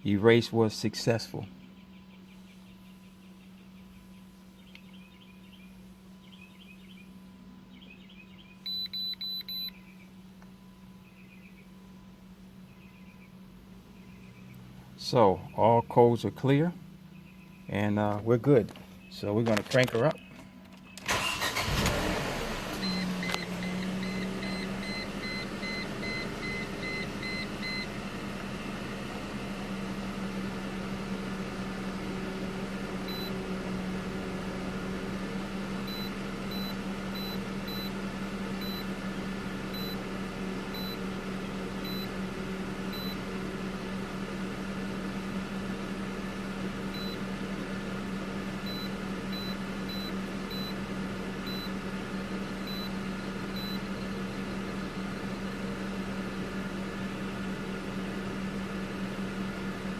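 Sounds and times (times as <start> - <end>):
car engine idling: 1.5 - 59.9
short electronic beeps: 8.6 - 9.8, 22.8 - 27.8, 35.9 - 37.9, 38.6 - 38.8, 39.8 - 40.0, 40.8 - 41.0, 41.8 - 42.1, 42.9 - 43.2, 48.7 - 50.7, 51.5 - 51.7.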